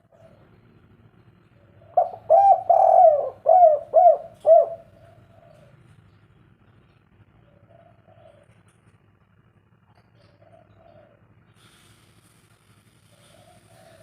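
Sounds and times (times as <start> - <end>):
dove cooing: 0.0 - 0.7, 1.6 - 5.9, 7.4 - 8.7, 10.2 - 11.4, 13.1 - 14.0.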